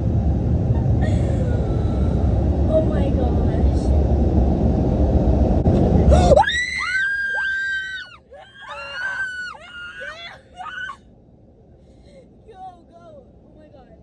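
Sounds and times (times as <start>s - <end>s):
car wash machinery rumble: 0.0s - 6.9s
girls screaming: 6.1s - 11.0s.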